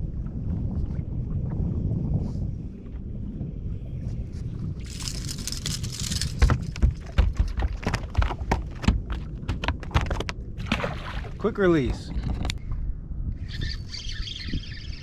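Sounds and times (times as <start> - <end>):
wind rumbling on microphone: 0.0 - 15.0
knocks and taps in boat: 6.3 - 11.0.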